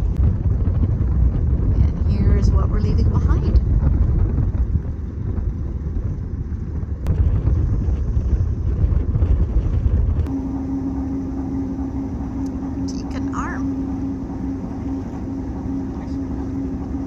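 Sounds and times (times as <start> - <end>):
diesel boat engine rumble: 0.0 - 17.0
wind noise: 0.0 - 17.0
steady tone: 10.2 - 17.0.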